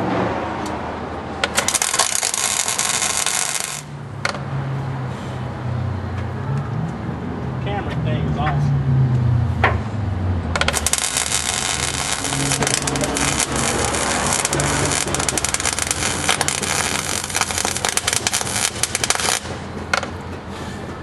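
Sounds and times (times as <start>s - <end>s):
welding arc crackling: 1.4s - 4.1s, 10.5s - 20.1s.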